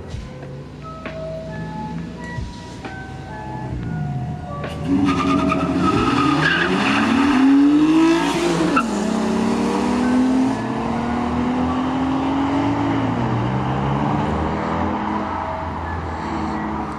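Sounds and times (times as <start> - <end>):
car engine accelerating hard: 4.2 - 16.9.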